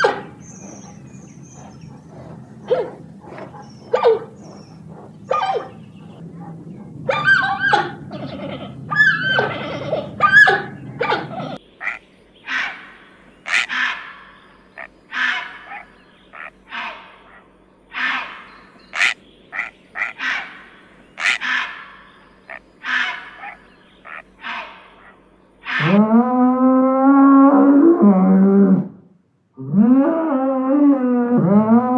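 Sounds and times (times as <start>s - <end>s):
animal short harsh calls: 0.0s - 6.2s, 7.1s - 14.4s, 15.1s - 22.2s, 22.8s - 26.0s
animal sound: 0.0s - 28.9s.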